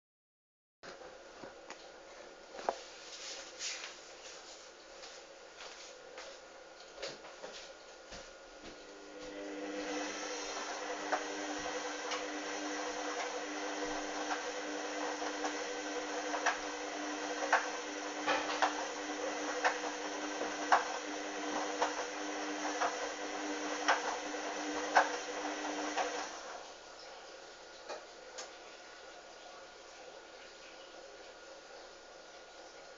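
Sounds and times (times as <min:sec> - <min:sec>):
washing machine motor hum: 0:07.0 - 0:32.9.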